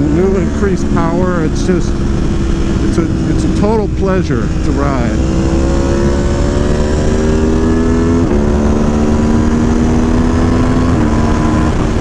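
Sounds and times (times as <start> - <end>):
motorcycle engine accelerating: 0.0 - 12.0
wind noise: 5.2 - 12.0.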